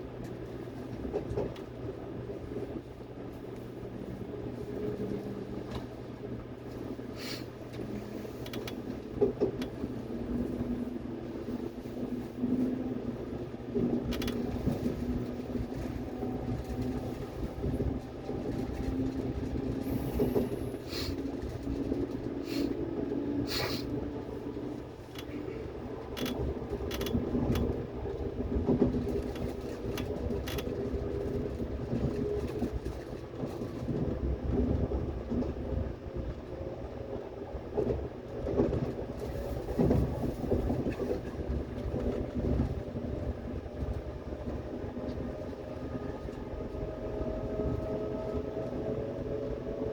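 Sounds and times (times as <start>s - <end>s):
train wheels rumbling on rail: 0.0s - 49.9s
wheels clacking over rail joints: 13.7s - 35.6s.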